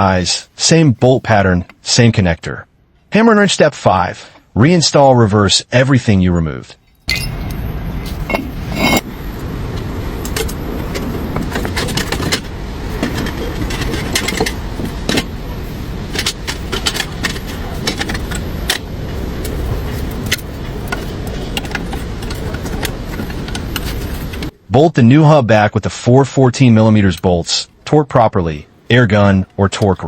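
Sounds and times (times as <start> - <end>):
steady background noise: 0.0 - 30.0
metal tools clinking: 6.8 - 9.3, 10.2 - 24.5.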